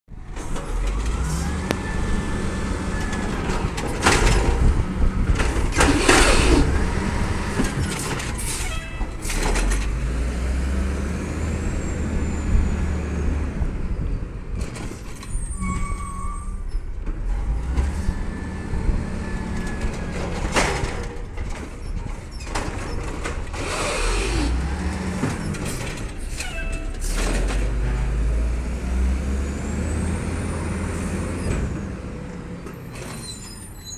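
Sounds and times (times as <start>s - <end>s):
diesel engine revving: 0.3s - 8.4s, 9.2s - 13.8s, 17.1s - 21.0s, 23.2s - 26.3s, 26.9s - 33.0s.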